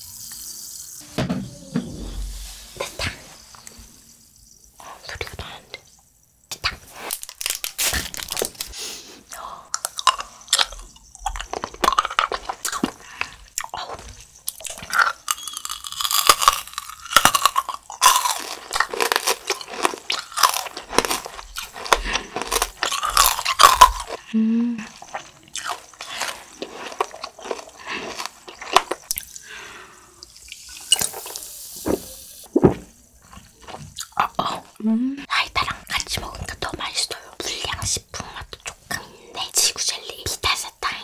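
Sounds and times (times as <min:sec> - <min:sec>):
fizzy hiss: 0:01.8 - 0:09.7, 0:29.1 - 0:32.5
crunching hard candy: 0:07.0 - 0:08.8, 0:09.7 - 0:29.5
wet chewing: 0:09.7 - 0:29.5.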